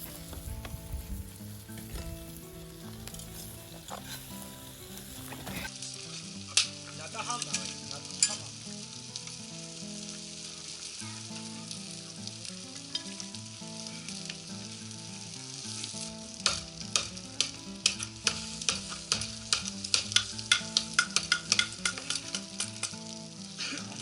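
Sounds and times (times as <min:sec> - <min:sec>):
fat popping and crackling: 0:00.0 - 0:24.0
food sizzling on griddle: 0:00.0 - 0:24.0.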